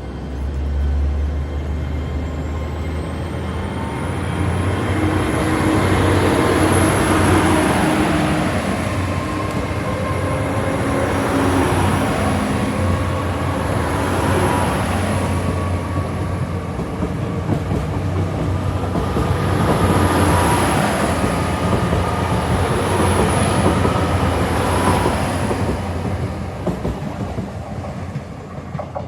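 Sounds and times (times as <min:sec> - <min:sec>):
train diesel engines running: 0:00.0 - 0:29.0
train wheels clacking over rail joints: 0:13.6 - 0:29.0.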